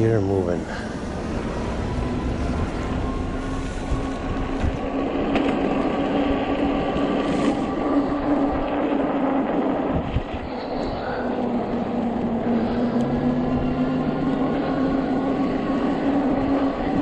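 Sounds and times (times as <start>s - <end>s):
electric motor whine: 0.0s - 17.0s
tires rolling rumble: 0.0s - 17.0s.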